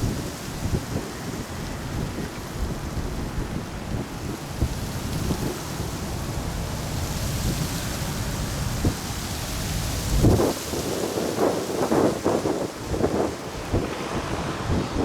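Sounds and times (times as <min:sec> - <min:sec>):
gusty wind buffeting microphone: 0:00.0 - 0:15.0.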